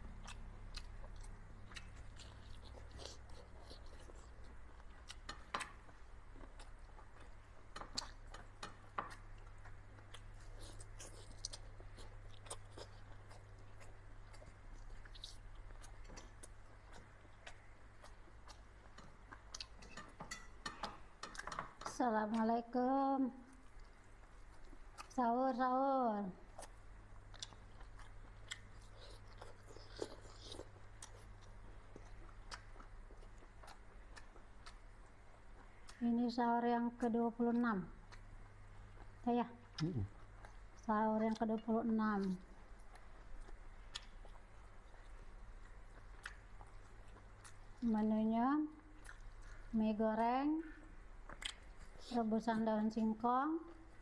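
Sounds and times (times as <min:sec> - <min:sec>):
person chewing crunchy food: 0:00.0 - 0:21.7, 0:26.5 - 0:36.0, 0:42.2 - 0:47.9, 0:48.9 - 0:49.7, 0:51.2 - 0:52.2
low steady hum: 0:00.0 - 0:54.0.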